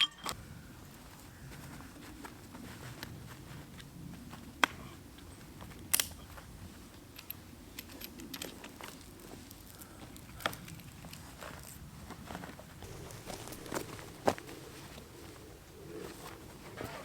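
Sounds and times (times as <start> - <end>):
cot handling noise: 10.5 - 17.0.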